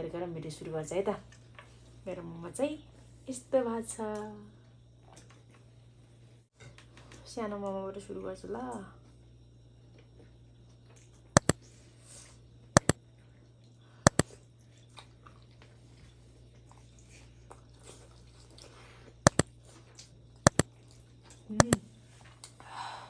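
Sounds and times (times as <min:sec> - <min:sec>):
sharp loud clicks: 0:14.1 - 0:14.3, 0:19.3 - 0:19.5, 0:20.5 - 0:20.7.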